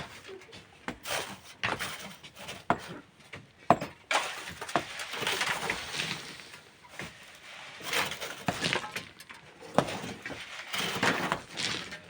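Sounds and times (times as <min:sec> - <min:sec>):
hammer striking rock: 0:03.7 - 0:04.0
gritty scraping rush: 0:04.7 - 0:12.0.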